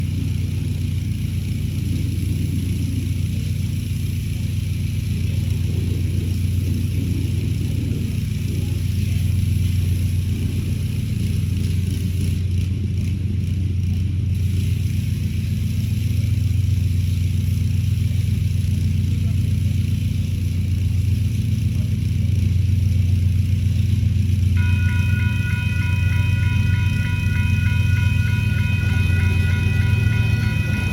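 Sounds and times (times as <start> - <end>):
generator engine running: 0.0 - 30.9
railroad crossing bell ringing: 24.5 - 30.9.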